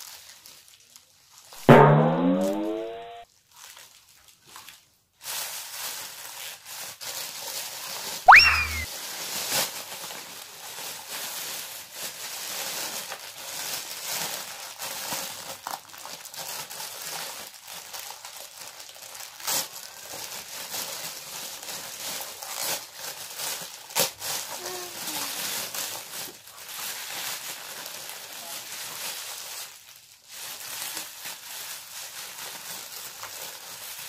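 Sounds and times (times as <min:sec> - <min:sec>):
squeak sweeping up in pitch: 0:01.7 - 0:03.2, 0:08.3 - 0:08.9
plastic bag crinkling: 0:09.0 - 0:34.0.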